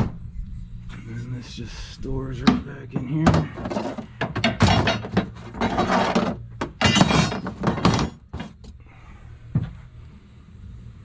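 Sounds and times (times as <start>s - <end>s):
knocks and rattles in truck bed: 2.4s - 8.7s.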